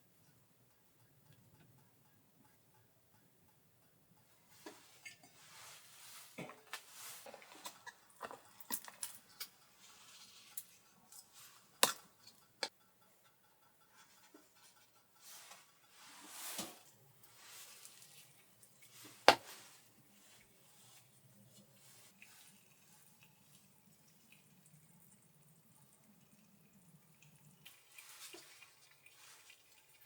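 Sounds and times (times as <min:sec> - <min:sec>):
objects being handled: 0:04.5 - 0:12.7, 0:14.0 - 0:22.2.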